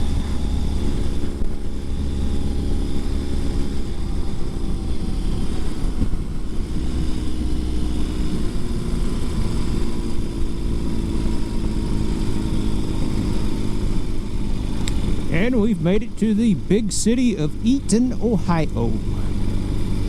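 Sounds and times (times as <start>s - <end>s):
motorcycle engine rumbling: 0.0s - 20.0s.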